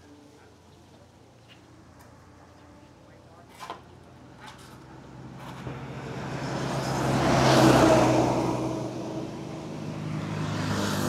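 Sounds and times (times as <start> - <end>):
road noise: 0.0 - 11.0
vehicle engine passing by: 4.2 - 11.0.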